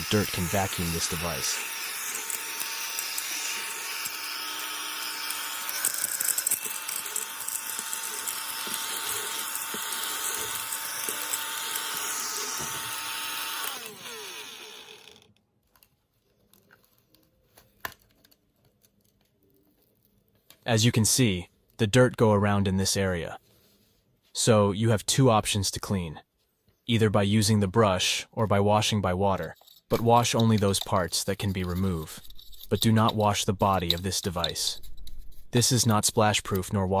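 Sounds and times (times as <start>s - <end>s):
small vacuum fan motor whine: 0.0s - 15.3s.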